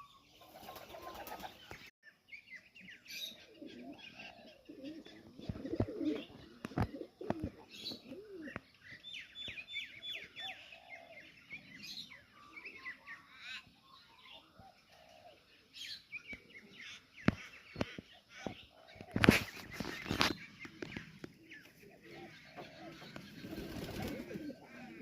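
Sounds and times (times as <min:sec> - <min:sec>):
small birds chirping: 0:00.0 - 0:25.0
pigeon cooing: 0:03.3 - 0:08.6, 0:10.2 - 0:11.3, 0:14.6 - 0:15.5, 0:21.8 - 0:25.0.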